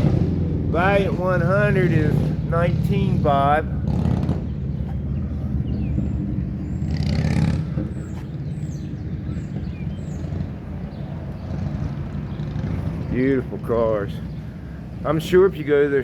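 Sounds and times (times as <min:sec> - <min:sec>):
motor vehicle rumbling: 0:00.0 - 0:16.0.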